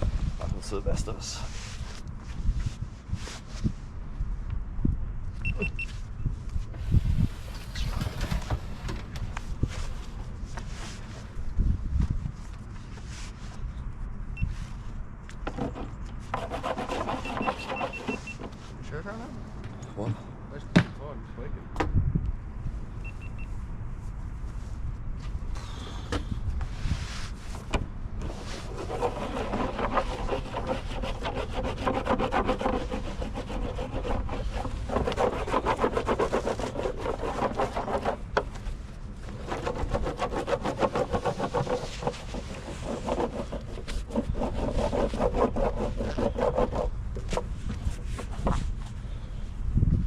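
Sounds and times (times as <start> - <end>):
rubbing in quick strokes: 15.6 - 18.9, 26.6 - 27.6, 28.2 - 49.0.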